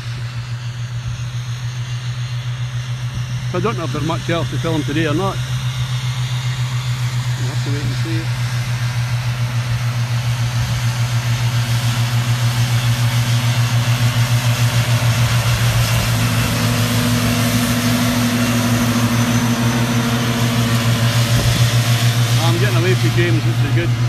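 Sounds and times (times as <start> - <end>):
vehicle engine throbbing: 0.0 - 24.0
higher steady tone: 14.8 - 24.0.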